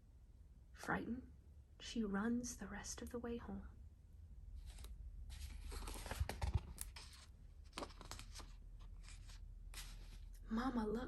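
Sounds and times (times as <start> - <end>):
paper pages rustling: 4.6 - 10.4.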